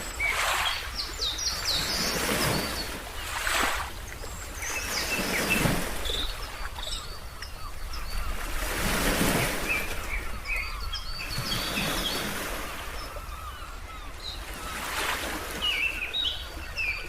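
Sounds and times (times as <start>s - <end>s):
ocean waves washing ashore: 0.0s - 13.4s
small birds chirping: 0.0s - 17.0s.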